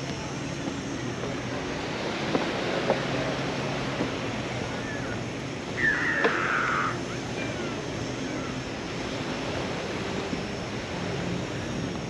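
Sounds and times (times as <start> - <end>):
distant engine hum: 0.0 - 12.0
surf: 0.0 - 12.0
short falling cry: 5.8 - 7.0
crowd noise: 5.8 - 7.8.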